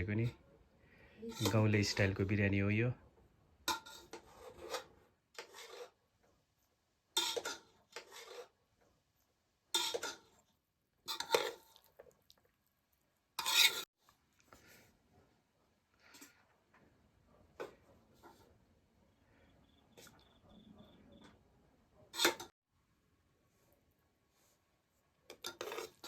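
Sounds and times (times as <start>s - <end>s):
metal spoon scraping metal dishes: 1.3s - 1.7s, 3.7s - 6.0s, 7.2s - 8.6s, 9.8s - 10.4s, 11.1s - 11.7s, 13.4s - 13.9s, 22.2s - 22.5s, 25.3s - 26.0s.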